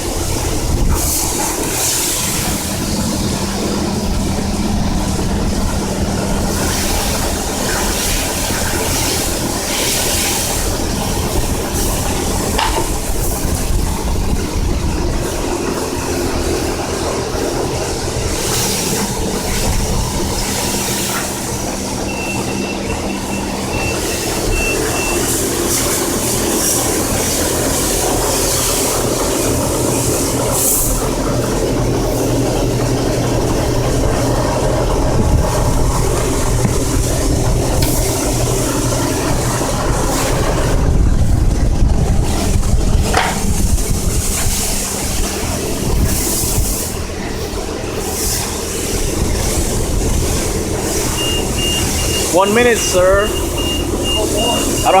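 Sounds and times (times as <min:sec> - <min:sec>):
spray wand hissing water: 0:00.0 - 0:14.2, 0:15.2 - 0:40.9, 0:42.0 - 0:55.0
high-pressure pump hum: 0:00.0 - 0:55.0
high beeps: 0:51.2 - 0:52.3, 0:53.2 - 0:55.0.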